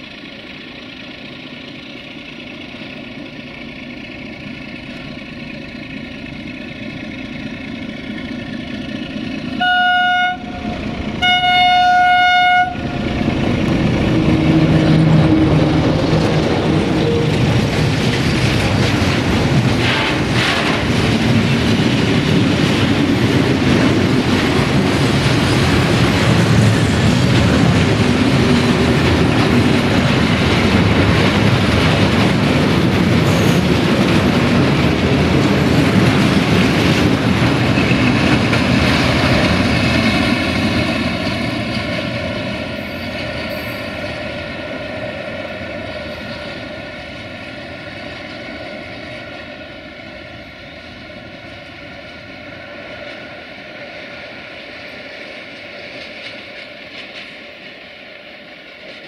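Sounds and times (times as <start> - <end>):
diesel engine passing: 0.0 - 53.0
locomotive horn blast: 9.6 - 13.2
wagon wheels clattering on rails: 13.1 - 49.8.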